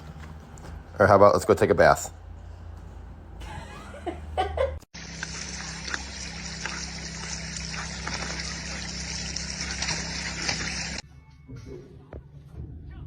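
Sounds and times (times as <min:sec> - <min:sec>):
running water hissing: 0:05.0 - 0:11.0.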